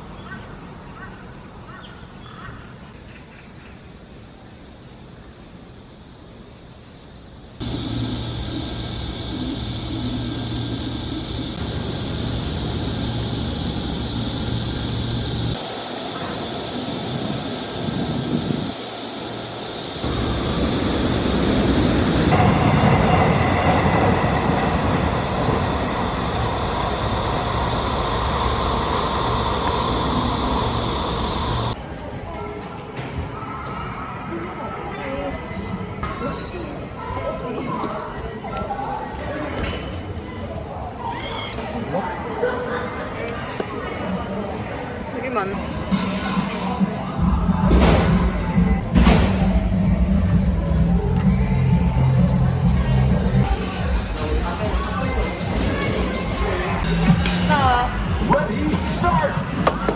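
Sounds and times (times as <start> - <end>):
high insect chorus: 0.0 - 31.8
moving vehicle rumbling hiss: 7.1 - 31.8.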